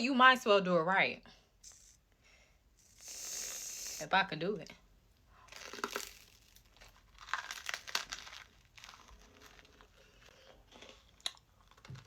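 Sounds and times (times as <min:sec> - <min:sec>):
wrapper crinkling and tearing: 0:05.5 - 0:12.0.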